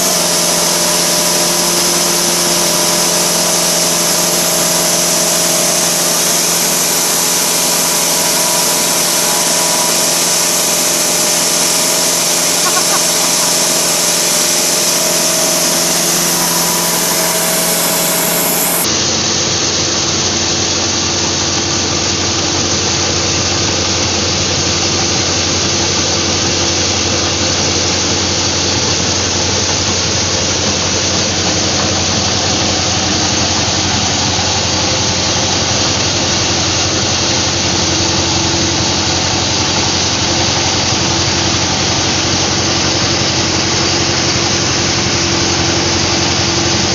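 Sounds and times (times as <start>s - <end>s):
hiss of grain through mill: 0.0s - 19.0s
rice milling machine drone: 0.0s - 46.9s.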